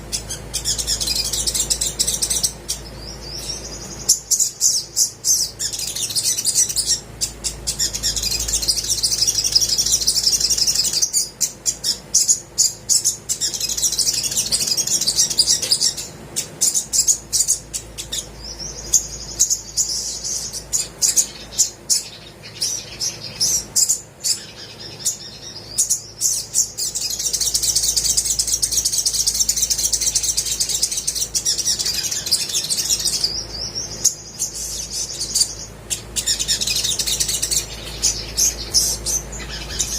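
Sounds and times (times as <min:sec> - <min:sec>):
bird chirping: 0:00.0 - 0:39.9
bird singing high-pitched trills: 0:00.0 - 0:39.9.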